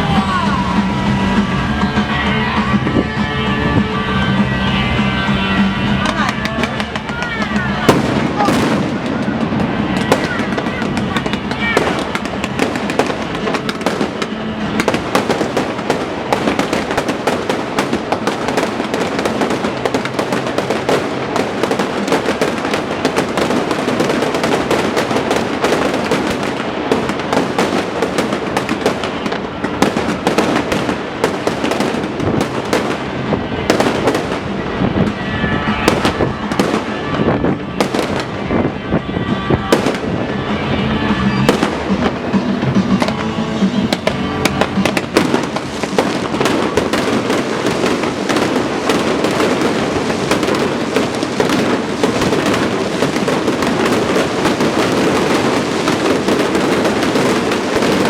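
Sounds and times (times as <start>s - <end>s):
fireworks bangs and crackling: 0.0s - 58.0s
music playing: 0.0s - 58.0s.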